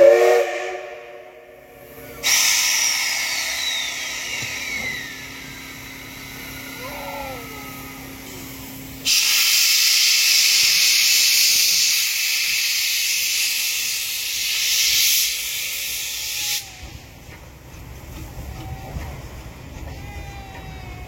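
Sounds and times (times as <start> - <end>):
compressed air hissing: 1.8 - 6.8, 8.2 - 17.2.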